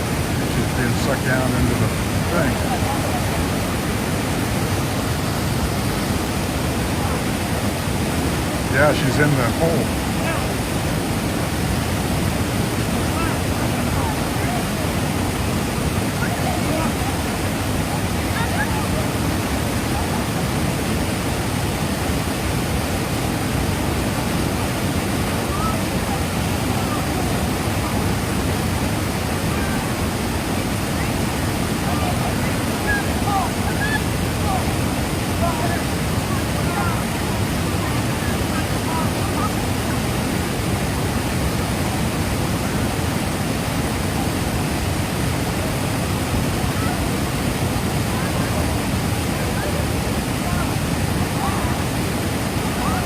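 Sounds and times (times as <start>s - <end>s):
floodwater rushing: 0.0s - 53.0s.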